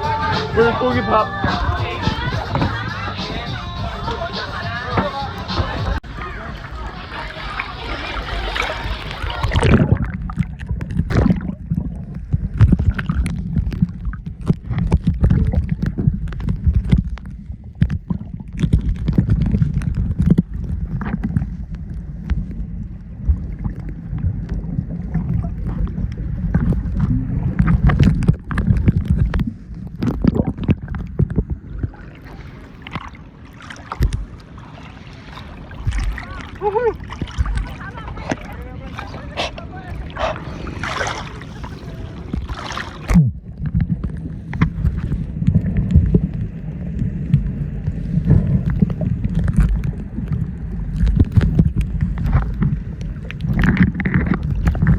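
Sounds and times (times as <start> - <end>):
water sloshing and gurgling: 0.0 - 54.9.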